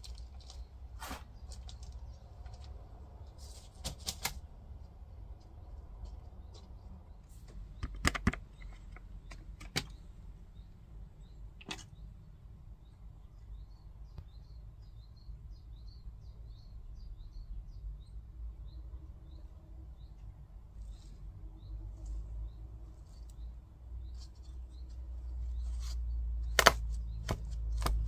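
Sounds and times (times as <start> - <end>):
small bird chirping: 5.4 - 28.0
sharp knocks and clicks: 7.5 - 10.0.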